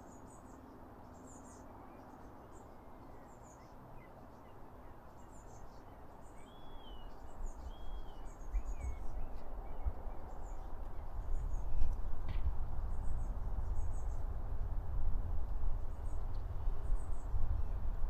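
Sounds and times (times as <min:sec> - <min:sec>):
songbirds chirping: 0:00.0 - 0:14.4
low gusty rumble: 0:07.6 - 0:18.0.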